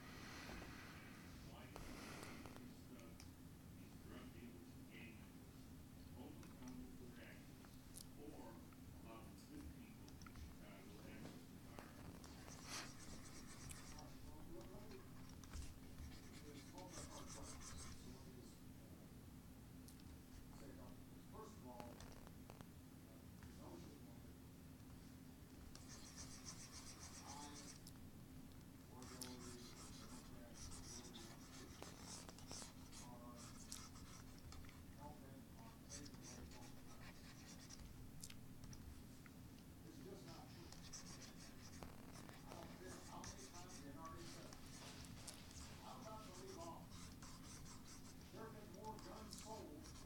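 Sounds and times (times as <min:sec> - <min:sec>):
faint steady hum: 0:00.0 - 0:50.0
drawing strokes scratching: 0:12.2 - 0:14.2, 0:15.2 - 0:18.0, 0:25.8 - 0:27.8, 0:29.0 - 0:34.4, 0:40.6 - 0:50.0.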